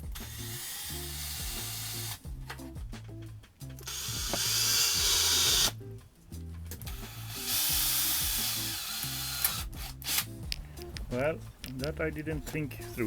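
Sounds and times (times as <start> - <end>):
background music with steady beat: 0.0 - 13.0
power drill running: 3.8 - 5.8, 6.9 - 10.3.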